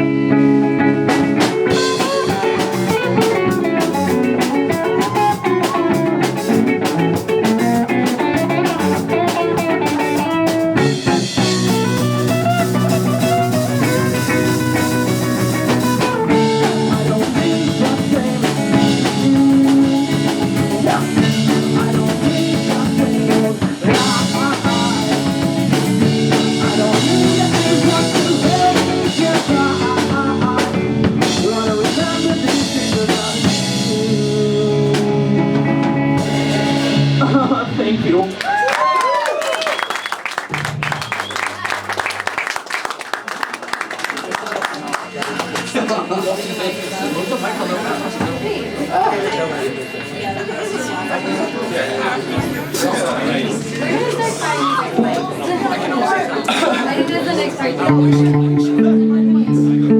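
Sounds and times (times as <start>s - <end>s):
electric guitar: 0.0s - 39.2s, 57.2s - 59.9s
drum kit: 1.0s - 42.5s, 44.0s - 55.6s
person singing: 16.0s - 38.2s.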